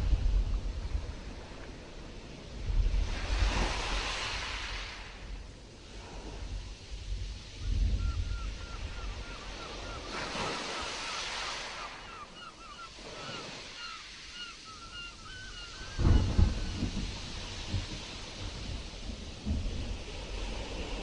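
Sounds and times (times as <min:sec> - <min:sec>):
sea surf washing: 0:00.0 - 0:21.0
stormy wind: 0:00.0 - 0:21.0
thunder rumble: 0:15.9 - 0:21.0.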